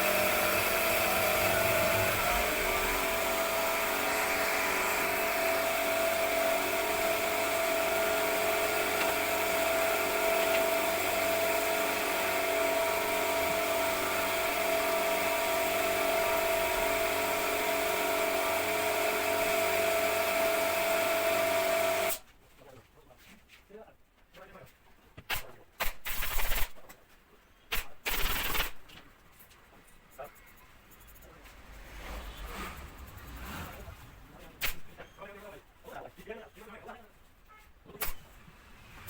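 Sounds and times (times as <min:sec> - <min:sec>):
electric power tool whining: 0:00.0 - 0:11.2.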